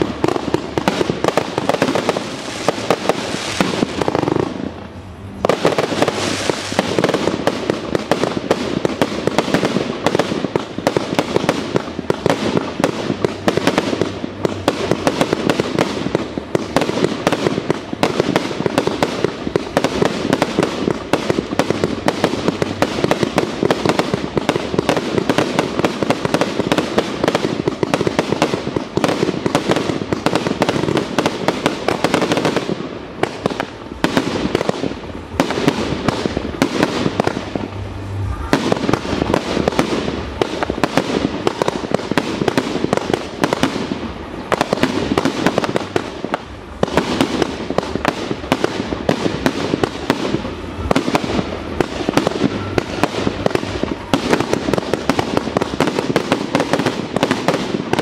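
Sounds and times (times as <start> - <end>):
firework shell bursts and crackling: 0.0 - 58.0.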